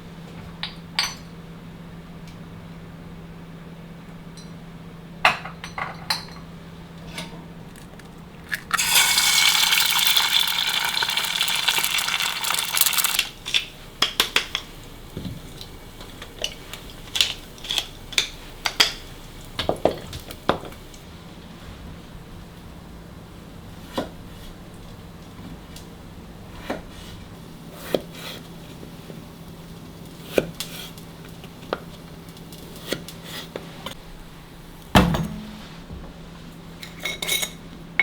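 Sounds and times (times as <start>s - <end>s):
water running: 8.4s - 13.5s.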